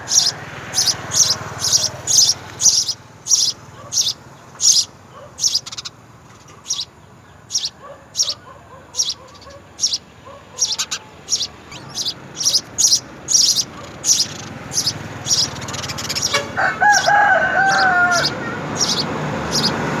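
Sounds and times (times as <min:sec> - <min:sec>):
small birds chirping: 0:00.0 - 0:20.0
rooster crowing: 0:16.1 - 0:19.7.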